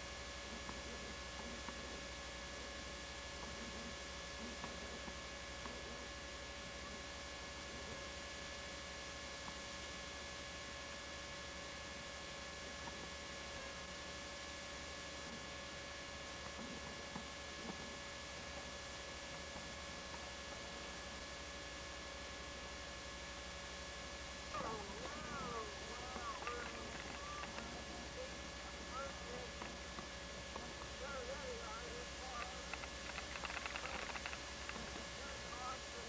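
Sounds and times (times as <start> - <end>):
electrical hum: 0.0 - 36.0
tape hiss: 0.0 - 36.0
faint ticks: 32.3 - 35.0.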